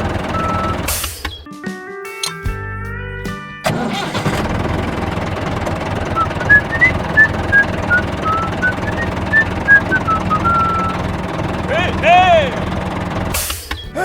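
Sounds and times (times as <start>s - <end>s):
low engine-like rumble: 0.0s - 0.9s, 3.7s - 13.5s
short high chirping whistles: 6.4s - 11.0s.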